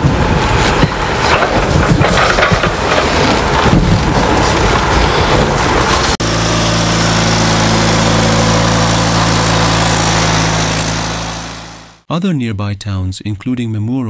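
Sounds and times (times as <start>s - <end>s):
rough noisy rumble: 0.0s - 12.0s
engine running steadily: 5.6s - 12.0s.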